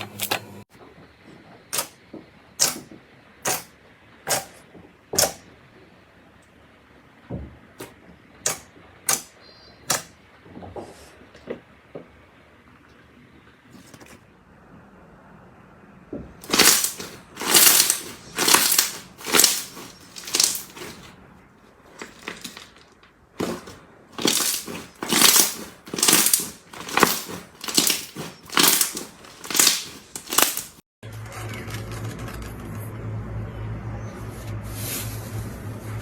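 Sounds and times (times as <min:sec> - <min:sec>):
wet slime squishing: 0:16.4 - 0:21.1, 0:23.4 - 0:30.8.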